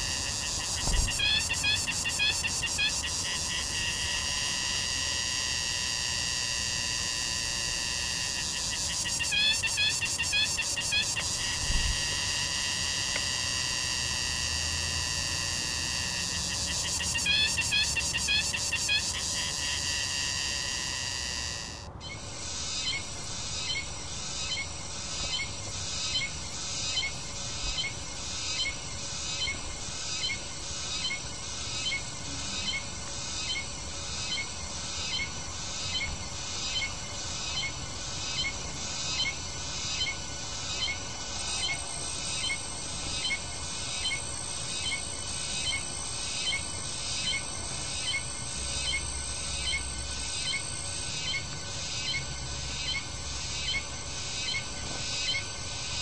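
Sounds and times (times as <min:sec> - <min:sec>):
bird calling: 0:00.0 - 0:05.0, 0:07.4 - 0:13.9, 0:15.9 - 0:22.2.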